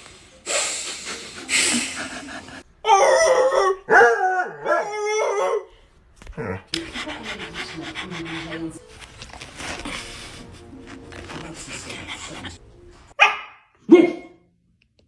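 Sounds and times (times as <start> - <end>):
dog-like howling and yelping: 2.8 - 5.7.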